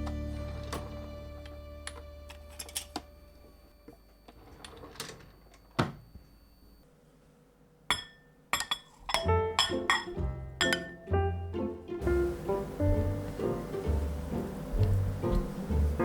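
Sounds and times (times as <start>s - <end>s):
kitchenware clinking against glass: 7.9s - 11.1s.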